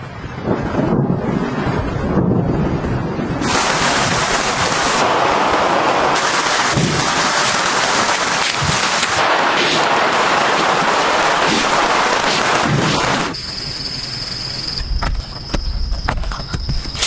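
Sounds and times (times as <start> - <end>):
low rumble: 0.0 - 6.2
heavy rain falling: 0.0 - 14.2.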